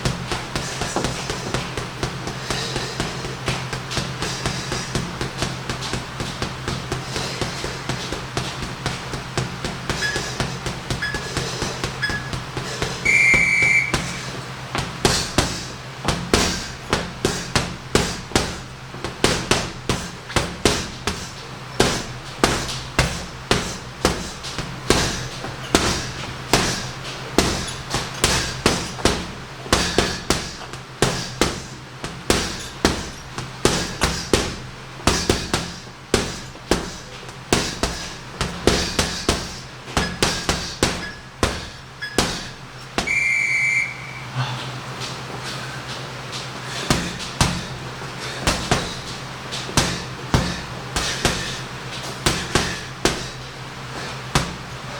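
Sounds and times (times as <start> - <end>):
gloves punching heavy bag: 0.0 - 43.2, 45.0 - 54.9
short high beep: 13.1 - 14.2, 43.1 - 44.4.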